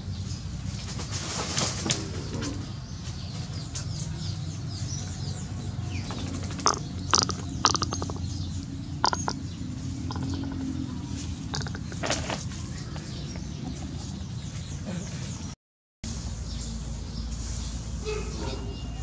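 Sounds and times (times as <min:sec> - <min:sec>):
bird chirps: 0:03.0 - 0:15.6.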